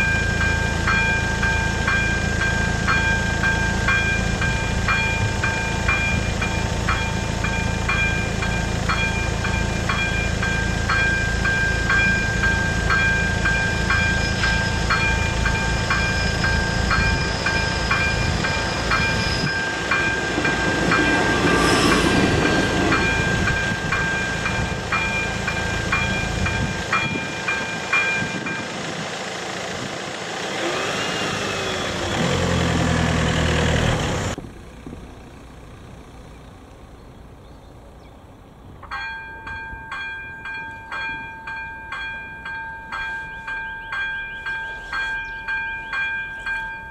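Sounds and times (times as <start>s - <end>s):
railway crossing bell ringing: 0.0s - 30.2s, 38.8s - 46.9s
low engine rumble: 0.0s - 46.9s
rumble with a pitched tone: 32.8s - 38.9s.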